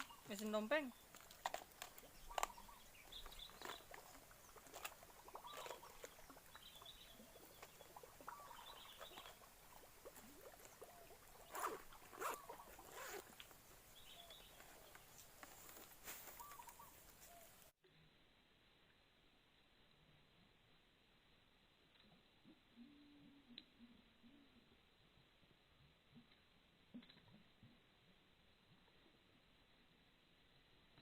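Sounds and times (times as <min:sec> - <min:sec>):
bird chirps: 0:00.0 - 0:01.0, 0:02.0 - 0:04.6, 0:05.3 - 0:09.4, 0:14.0 - 0:15.2, 0:16.3 - 0:17.5.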